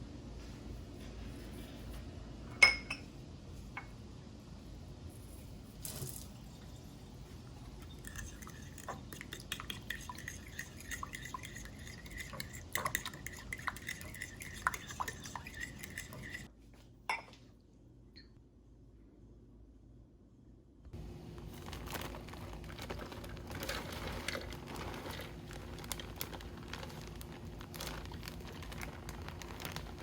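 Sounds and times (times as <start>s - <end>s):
utensils and dishes clinking: 7.8s - 16.5s.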